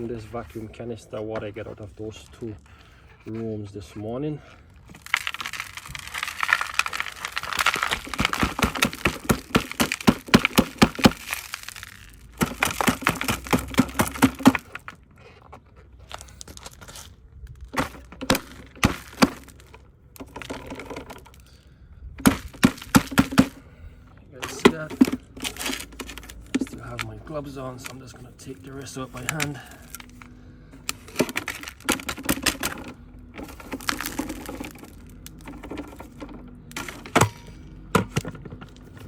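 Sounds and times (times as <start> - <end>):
grit pouring out of canister: 4.9 - 14.8, 24.4 - 37.2.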